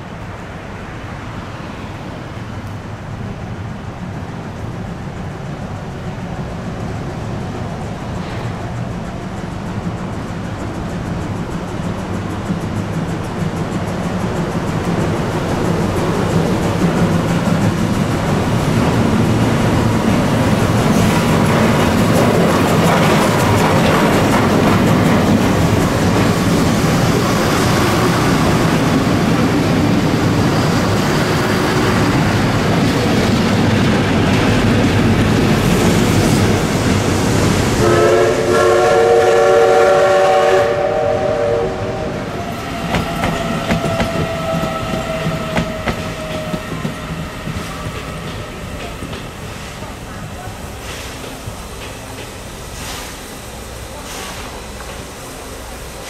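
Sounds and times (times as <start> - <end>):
steam locomotive approaching: 0.0 - 56.0
train wheels clattering over track: 2.3 - 56.0
faint steady horn tone: 37.8 - 42.1
train horn chord: 37.8 - 42.3.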